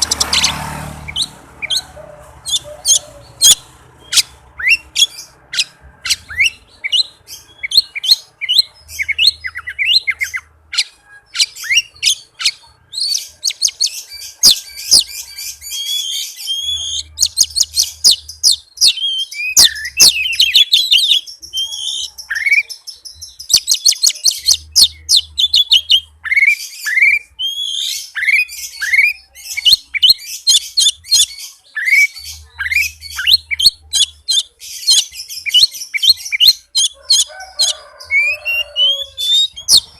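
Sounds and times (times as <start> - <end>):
bird singing chirps and trills: 0.0 - 39.9.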